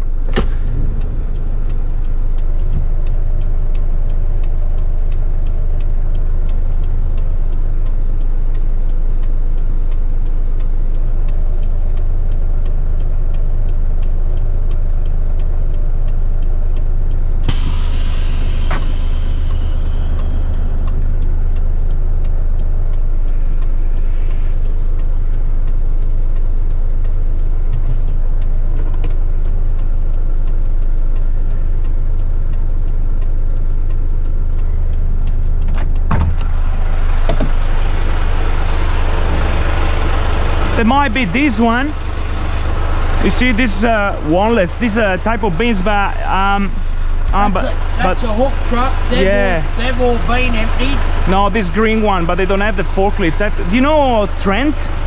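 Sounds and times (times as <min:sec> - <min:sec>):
faint regular ticking: 0:00.0 - 0:55.0
truck diesel engine running: 0:00.0 - 0:55.0
air brakes hissing: 0:17.5 - 0:20.8.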